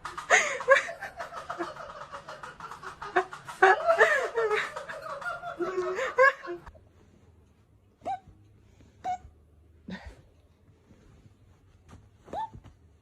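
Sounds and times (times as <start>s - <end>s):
people laughing: 0.0s - 6.7s.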